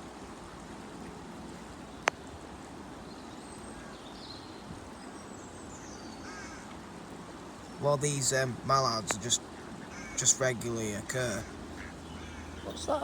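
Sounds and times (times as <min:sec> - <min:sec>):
outdoor background hiss: 0:00.0 - 0:13.0
distant bird calls: 0:03.2 - 0:06.8, 0:08.8 - 0:13.0.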